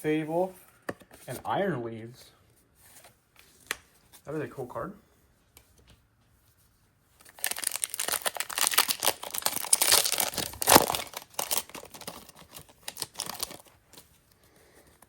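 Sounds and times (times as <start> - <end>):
foil wrapper tearing and crinkling: 7.2 - 14.0.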